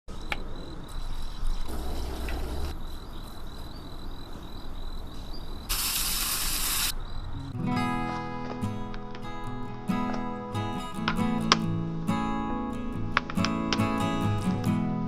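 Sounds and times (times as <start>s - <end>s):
high-pitched insect trill: 0.1s - 7.6s
outdoor hiss: 0.2s - 7.2s.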